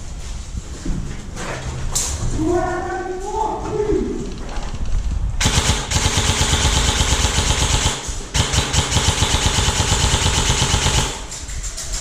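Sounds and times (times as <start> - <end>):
airsoft gun firing full-auto: 5.4 - 11.3.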